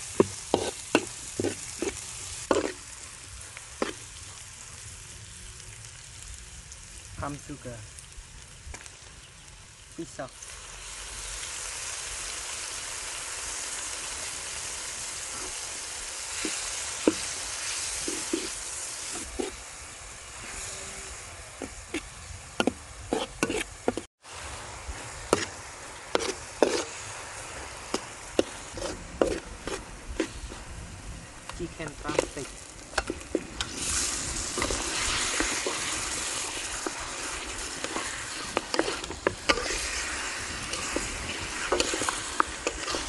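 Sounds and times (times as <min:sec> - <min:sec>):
food sizzling in hot oil: 0:00.0 - 0:43.0
metal spatula scraping a wok: 0:00.2 - 0:02.8, 0:16.4 - 0:19.6, 0:21.6 - 0:24.1, 0:25.3 - 0:30.6, 0:32.1 - 0:43.0.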